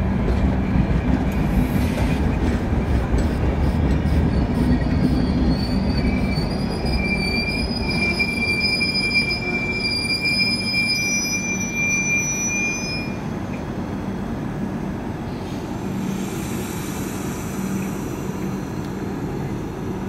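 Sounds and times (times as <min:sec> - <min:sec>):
train wheels rumbling on track: 0:00.0 - 0:20.0
high wheel squeal: 0:04.1 - 0:13.2.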